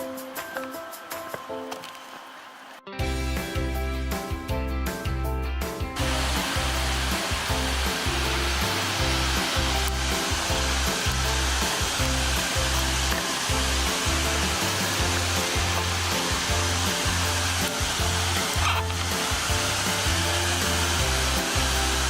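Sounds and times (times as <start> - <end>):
background music with bass: 3.0 - 22.0
waterfall rushing: 6.0 - 22.0.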